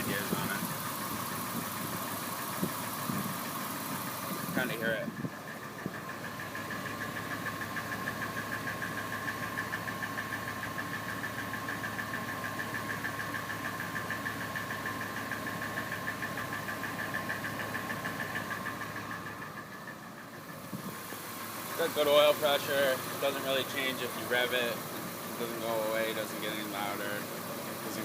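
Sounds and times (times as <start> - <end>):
engine idling with quick tick: 0.0 - 28.0.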